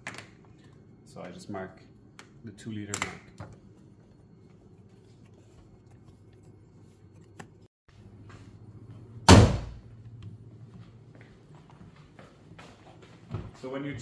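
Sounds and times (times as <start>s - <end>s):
car body panel slammed shut: 9.3s - 9.8s.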